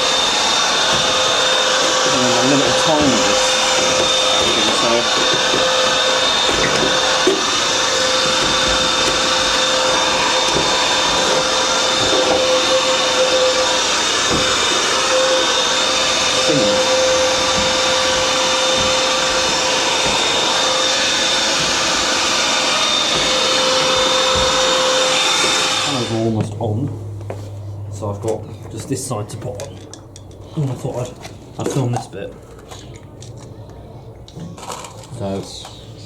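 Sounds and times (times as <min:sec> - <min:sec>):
vacuum cleaner whining: 0:00.0 - 0:26.9
nozzle knocking and scraping: 0:00.8 - 0:16.2, 0:16.8 - 0:22.0.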